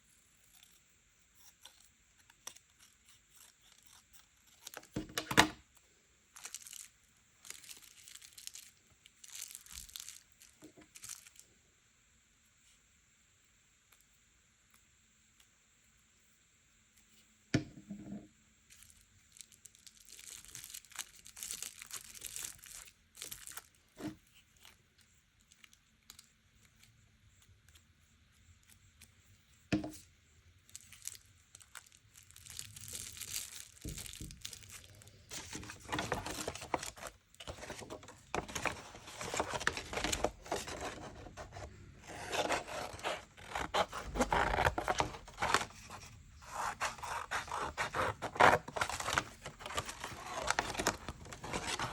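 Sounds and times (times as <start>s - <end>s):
paper tearing and rustling: 32.3s - 51.9s.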